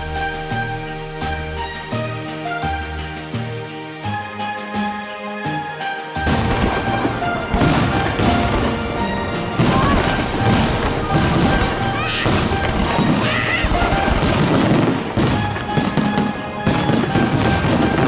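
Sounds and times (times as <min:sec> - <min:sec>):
background music: 0:00.0 - 0:18.0
fireworks bangs: 0:06.2 - 0:18.0.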